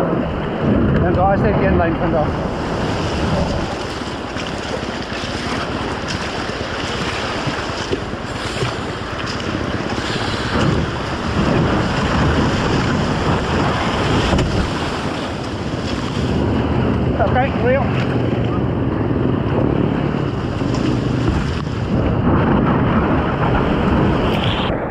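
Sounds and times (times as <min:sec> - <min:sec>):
wind buffeting microphone: 0:00.0 - 0:24.9
whitewater rushing: 0:01.1 - 0:18.5.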